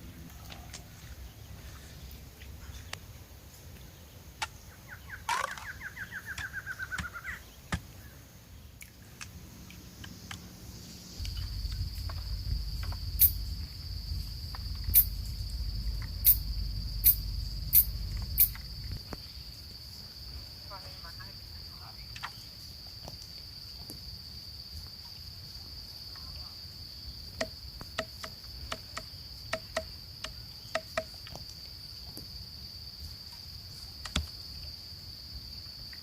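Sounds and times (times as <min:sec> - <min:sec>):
insect buzzing: 0:09.4 - 0:21.6
low rumble: 0:10.6 - 0:19.9.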